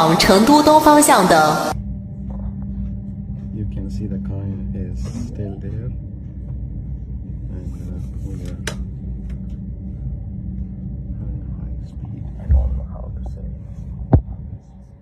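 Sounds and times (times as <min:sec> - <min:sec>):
short thump: 0:12.5 - 0:12.8.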